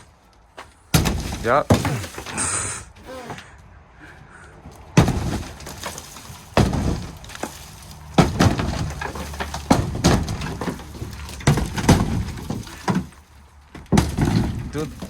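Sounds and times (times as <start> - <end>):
loose pieces rattling and crashing: 5.0 - 15.0.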